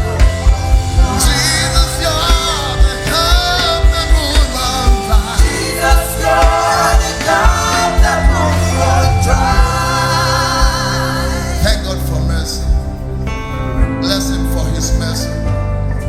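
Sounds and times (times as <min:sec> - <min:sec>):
drum beat: 0:00.0 - 0:11.1
band playing: 0:00.0 - 0:16.0
bass notes: 0:00.0 - 0:16.0
voices singing: 0:01.0 - 0:13.0.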